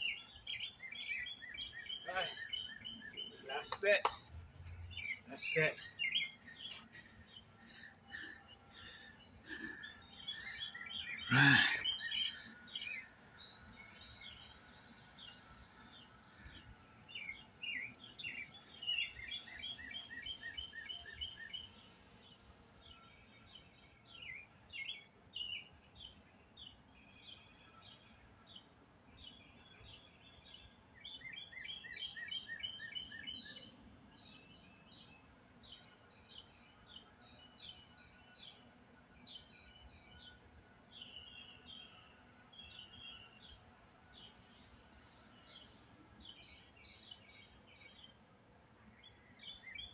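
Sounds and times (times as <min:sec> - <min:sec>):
songbirds chirping and singing: 0:00.0 - 0:49.9
fast repeated bird notes: 0:04.8 - 0:13.0.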